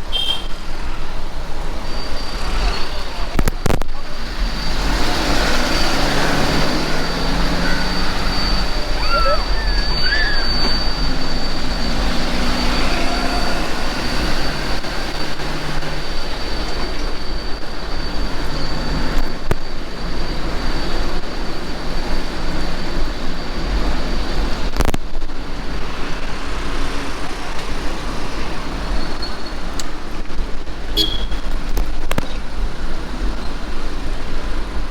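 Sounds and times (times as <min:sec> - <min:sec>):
road and wind noise: 0:00.0 - 0:34.9
faint steady high whine: 0:01.1 - 0:26.7.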